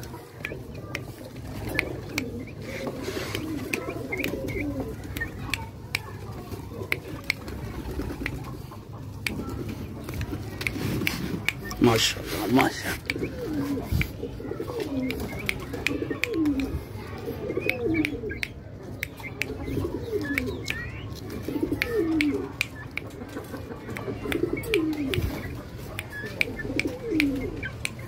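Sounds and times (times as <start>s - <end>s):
bird cooing: 1.5s - 5.5s, 13.0s - 18.4s, 19.3s - 22.6s, 24.0s - 25.5s, 26.2s - 27.8s.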